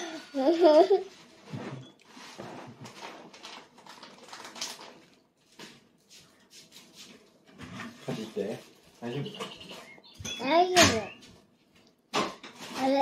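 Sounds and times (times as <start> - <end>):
child chewing with mouth smacks: 11.3 - 12.1.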